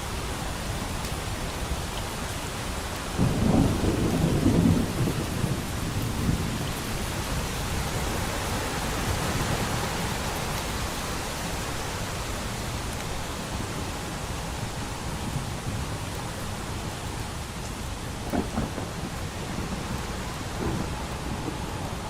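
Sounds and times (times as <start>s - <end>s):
steady rain: 0.0s - 22.0s
thunder rolling: 3.2s - 6.8s, 18.2s - 22.0s.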